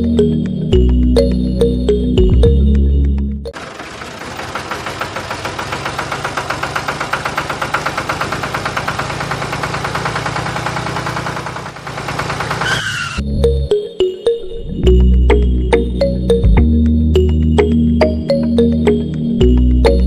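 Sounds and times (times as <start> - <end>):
engine with rapid knocking beat: 3.5 - 13.2.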